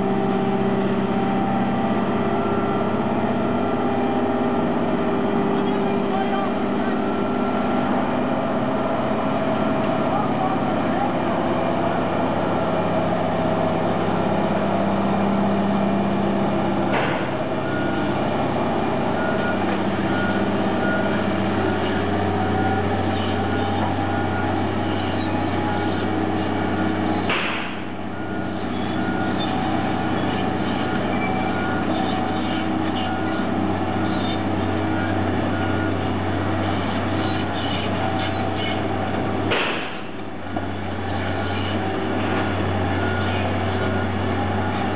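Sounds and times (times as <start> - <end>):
heavy diesel engine running: 0.0 - 44.9
high reversing beep: 41.2 - 44.9.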